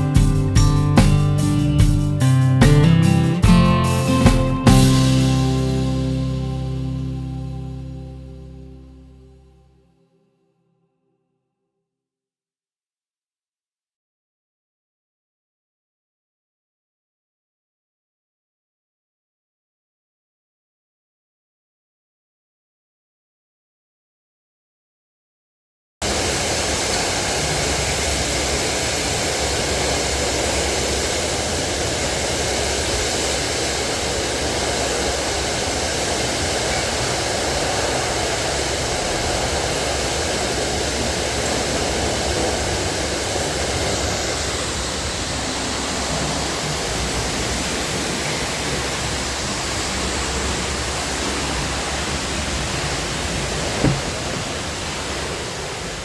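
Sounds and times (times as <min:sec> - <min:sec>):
water spraying onto a car: 0:26.0 - 0:56.0.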